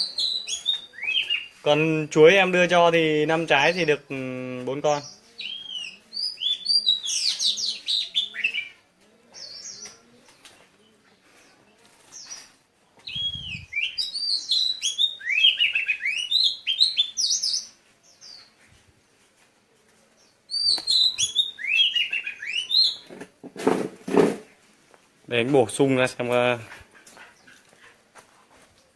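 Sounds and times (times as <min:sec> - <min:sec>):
small birds chirping: 0:00.0 - 0:28.9
lower bird call: 0:13.0 - 0:17.8.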